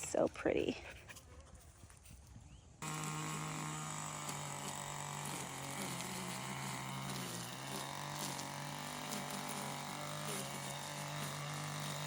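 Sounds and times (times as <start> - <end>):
small engine running: 2.8 - 12.0.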